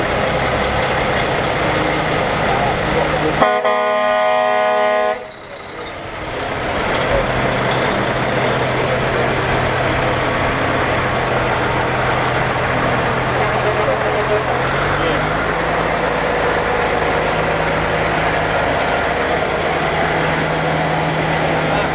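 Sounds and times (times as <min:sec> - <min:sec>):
heavy truck engine droning: 0:00.0 - 0:21.9
truck air horn blasting: 0:03.3 - 0:05.4.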